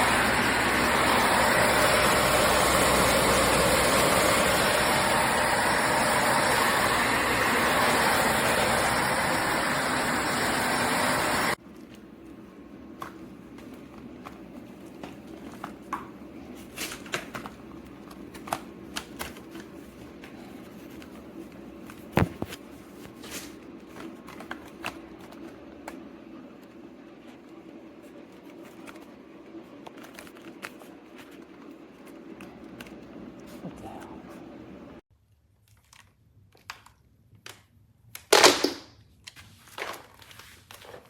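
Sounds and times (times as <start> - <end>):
vacuum cleaner humming: 0.0 - 18.8.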